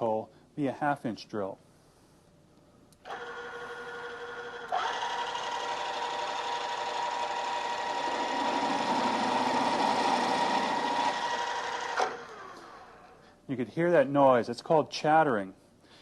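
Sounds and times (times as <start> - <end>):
drill press spinning: 3.0 - 13.2.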